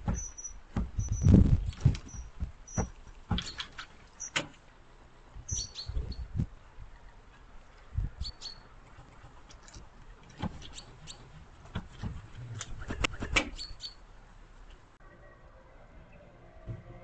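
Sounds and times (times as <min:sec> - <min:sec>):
dull knocks and thumps: 0:00.0 - 0:03.8, 0:11.6 - 0:12.3
small birds chirping: 0:00.0 - 0:04.4, 0:05.4 - 0:06.5, 0:07.9 - 0:08.8, 0:10.6 - 0:11.4, 0:13.2 - 0:14.1.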